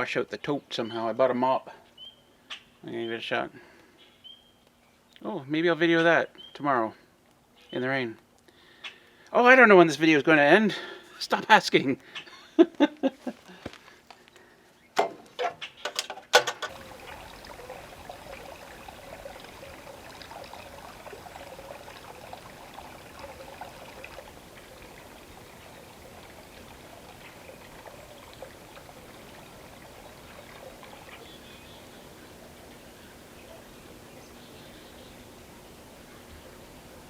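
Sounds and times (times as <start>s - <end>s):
running water trickling: 16.4s - 37.0s.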